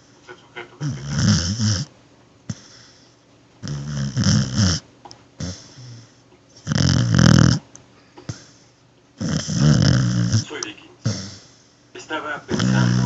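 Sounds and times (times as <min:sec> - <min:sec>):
dog breathing: 0:00.0 - 0:01.9, 0:02.5 - 0:04.8, 0:05.4 - 0:13.0
dog snoring: 0:00.8 - 0:01.9, 0:02.5 - 0:07.7, 0:08.3 - 0:08.6, 0:09.2 - 0:11.7, 0:12.5 - 0:13.0.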